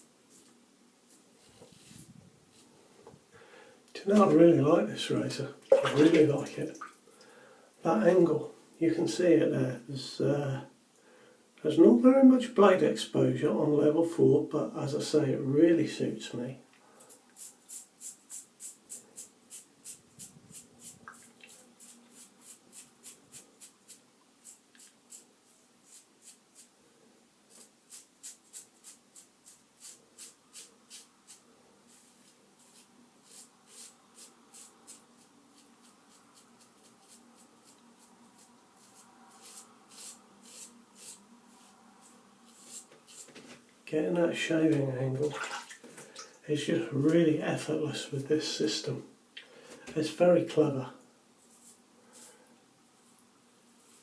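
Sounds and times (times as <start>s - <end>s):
razor scraping stubble: 17.3s - 26.7s, 27.5s - 43.6s.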